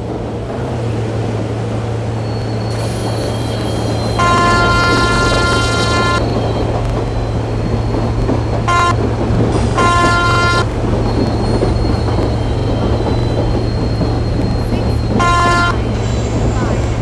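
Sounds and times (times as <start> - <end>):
running train rumble: 0.0 - 17.0
train horn blasts: 2.7 - 6.4, 8.6 - 10.8, 15.1 - 16.8.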